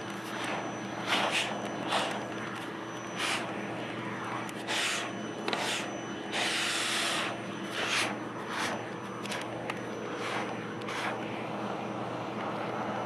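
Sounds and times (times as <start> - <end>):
vacuum cleaner motor humming: 0.0 - 13.0
brush rubbing through fur: 0.2 - 2.3, 4.6 - 9.4, 10.1 - 11.2.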